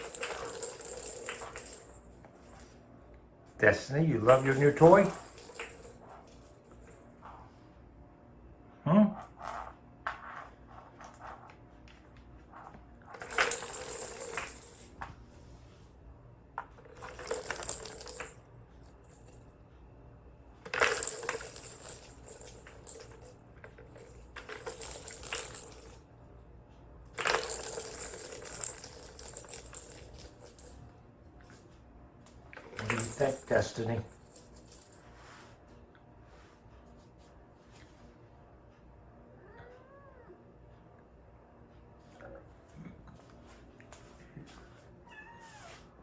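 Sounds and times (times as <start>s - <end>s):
ball toy rattling and jingling: 0.0s - 2.8s, 4.2s - 7.4s, 12.5s - 15.1s, 16.7s - 19.5s, 20.7s - 26.0s, 27.1s - 30.9s, 32.6s - 35.1s.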